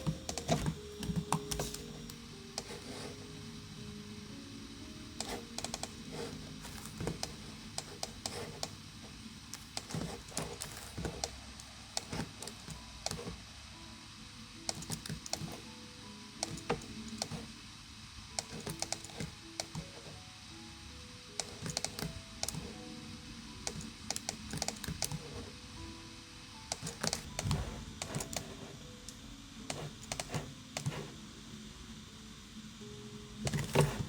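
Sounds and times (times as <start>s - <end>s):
keyboard typing clicks: 0.0s - 3.1s, 5.2s - 8.8s, 9.5s - 13.4s, 14.7s - 15.7s, 16.4s - 17.5s, 18.4s - 20.0s, 21.4s - 22.8s, 23.6s - 25.4s, 26.7s - 31.1s
soft background music: 0.0s - 34.0s.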